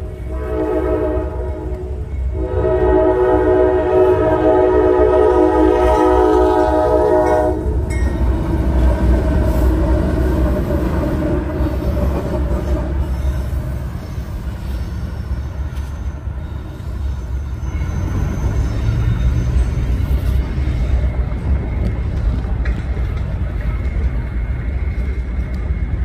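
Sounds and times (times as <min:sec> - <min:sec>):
locomotive horn: 0:00.0 - 0:07.8
freight train cars rolling: 0:00.0 - 0:26.0
wheel squeal: 0:11.7 - 0:22.3.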